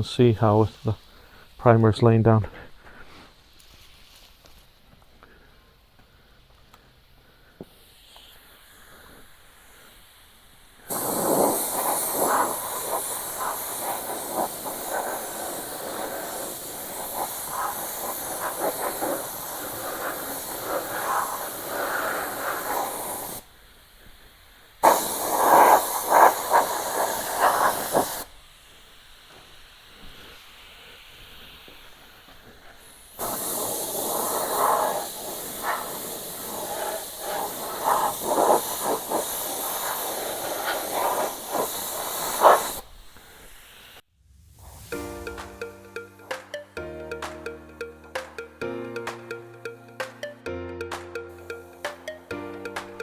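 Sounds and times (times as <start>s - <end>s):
air spray gun hissing: 7.5s - 44.0s.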